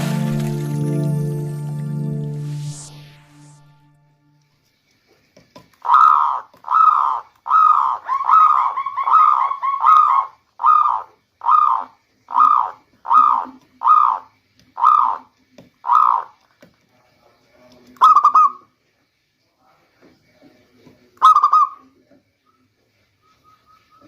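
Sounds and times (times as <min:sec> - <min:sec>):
dove cooing: 0:05.8 - 0:15.3, 0:15.9 - 0:16.3.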